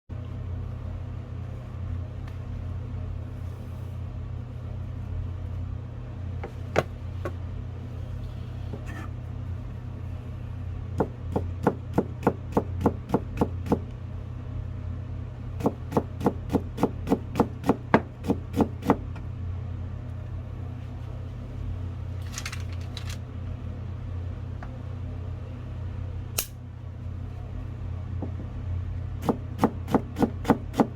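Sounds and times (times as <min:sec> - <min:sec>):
steady low hum: 0:00.1 - 0:30.9
knife chopping on cutting board: 0:11.0 - 0:13.8, 0:15.6 - 0:19.0, 0:29.2 - 0:30.9.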